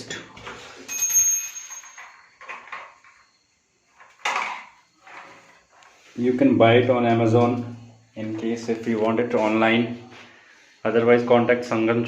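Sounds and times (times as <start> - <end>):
small metal object clinking: 0.8 - 3.4
soft handling noises: 8.2 - 10.4.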